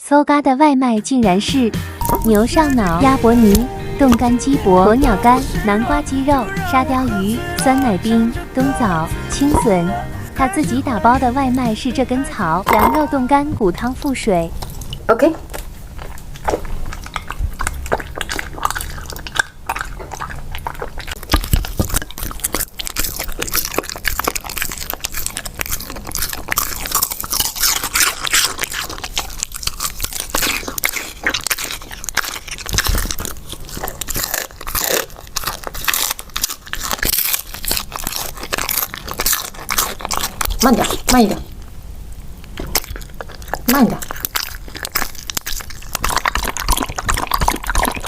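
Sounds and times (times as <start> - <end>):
dog chewing crunchy food: 1.8 - 41.8, 42.5 - 48.0.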